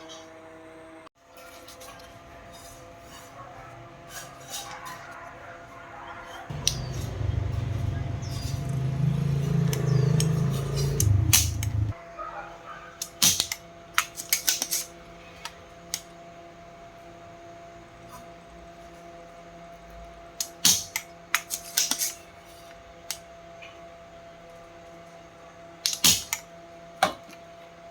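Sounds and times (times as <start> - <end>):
loud low buzzing hum: 6.5 - 12.0.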